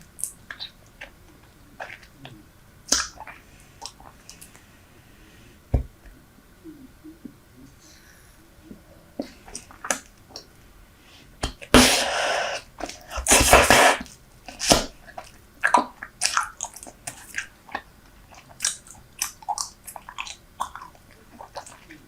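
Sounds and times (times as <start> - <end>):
gum chewing close up: 14.6 - 22.0.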